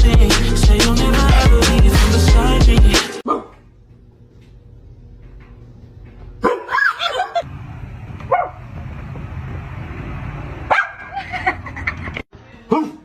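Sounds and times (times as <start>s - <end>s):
dog barking and yipping: 6.4s - 7.4s, 8.3s - 8.6s, 10.7s - 11.2s
low rumbling noise: 7.4s - 10.7s.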